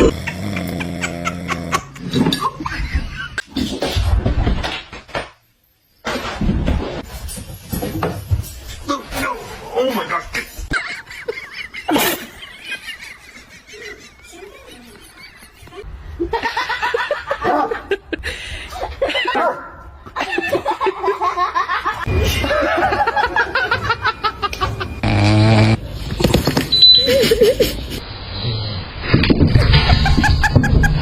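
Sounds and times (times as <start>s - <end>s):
people laughing: 10.2s - 19.4s, 20.2s - 25.0s, 27.0s - 28.0s, 29.5s - 31.0s.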